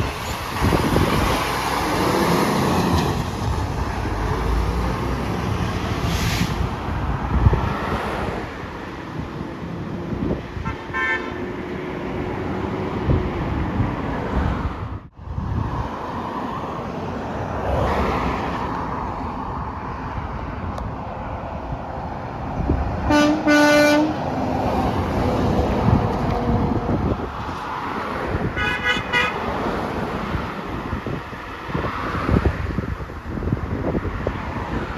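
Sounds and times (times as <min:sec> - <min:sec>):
passing road traffic: 0:00.0 - 0:34.9
truck horn honking: 0:10.6 - 0:11.5, 0:23.1 - 0:24.3, 0:28.5 - 0:29.5.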